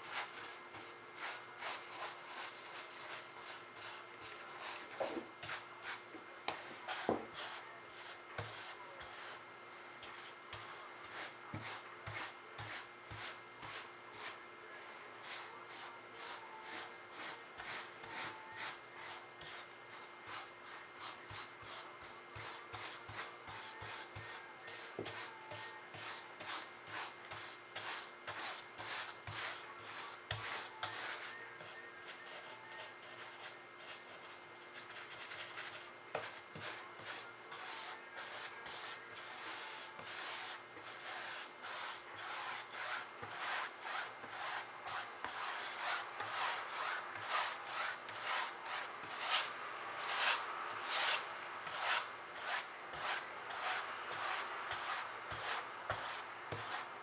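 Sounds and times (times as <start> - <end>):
paintbrush scrubbing: 35.6 - 56.8.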